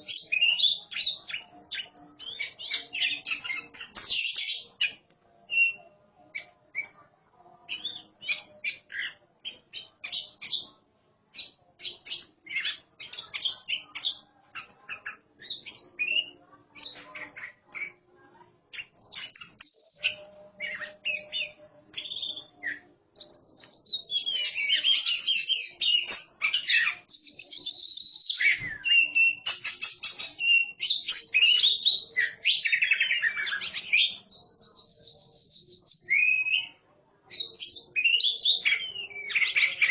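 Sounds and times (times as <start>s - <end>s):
birds singing chirps and whistles: 0.0s - 7.0s, 7.7s - 18.0s, 18.7s - 39.9s.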